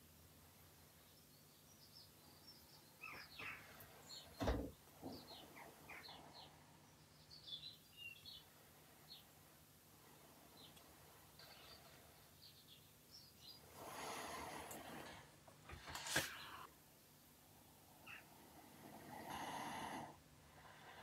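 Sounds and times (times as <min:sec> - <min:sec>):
faint bird chirps: 0:00.8 - 0:09.4, 0:10.1 - 0:13.7, 0:17.9 - 0:18.4.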